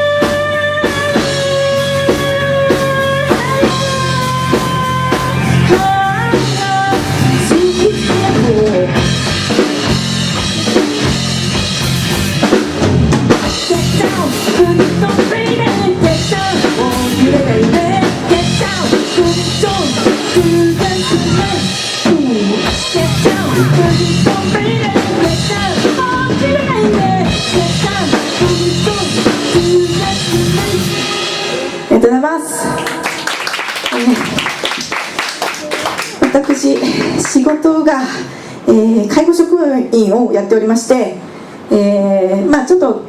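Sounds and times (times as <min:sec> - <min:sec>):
person singing: 0:00.0 - 0:09.0, 0:13.6 - 0:31.8
live band playing: 0:00.0 - 0:37.3.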